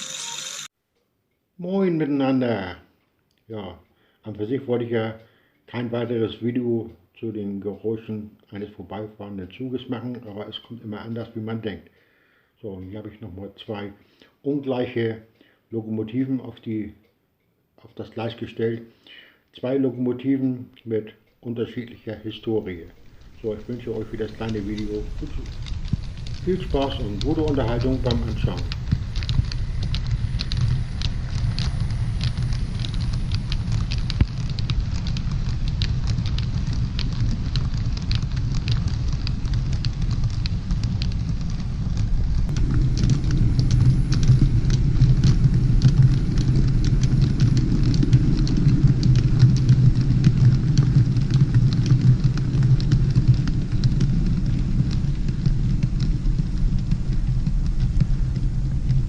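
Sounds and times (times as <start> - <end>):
wheels clicking on rails: 22.4 - 59.0
model train rumbling on track: 23.1 - 32.5.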